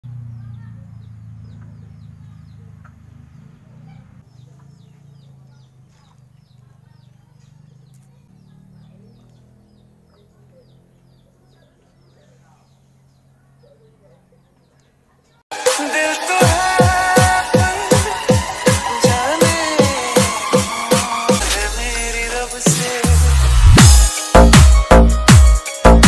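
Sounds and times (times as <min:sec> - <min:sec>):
small birds chirping: 0:00.1 - 0:15.4.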